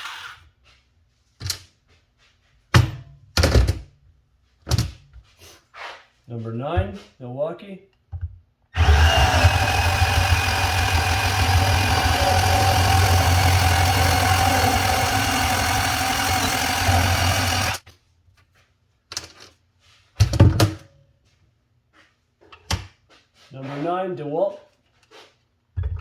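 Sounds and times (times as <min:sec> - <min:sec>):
cordless bandsaw cutting: 0:08.8 - 0:17.8.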